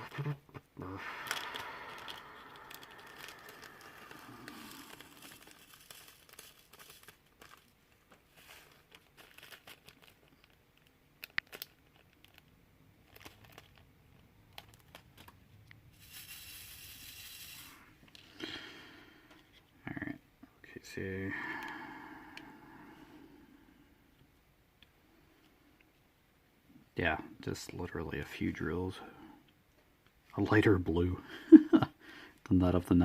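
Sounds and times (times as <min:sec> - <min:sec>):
plastic film crinkling: 0:01.0 - 0:17.8
soft rustle: 0:02.0 - 0:18.2.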